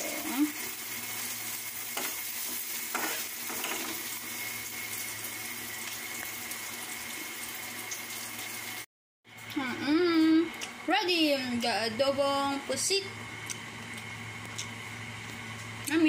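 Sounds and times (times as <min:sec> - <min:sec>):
garlic and onion sizzling in oil: 0:00.0 - 0:08.9
spoon scraping a pan: 0:02.9 - 0:04.0.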